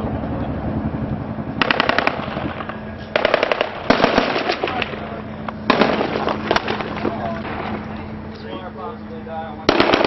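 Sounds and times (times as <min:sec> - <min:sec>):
automatic gunfire bursts: 0:01.6 - 0:04.9, 0:05.7 - 0:07.6, 0:09.7 - 0:10.0.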